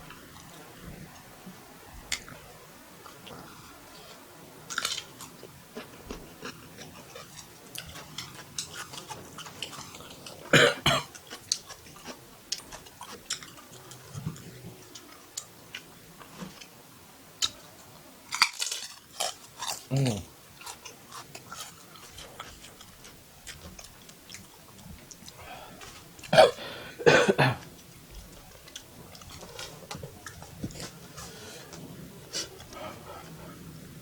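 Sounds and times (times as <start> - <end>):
person chewing food: 3.0 - 16.8, 17.4 - 27.0, 27.6 - 33.5.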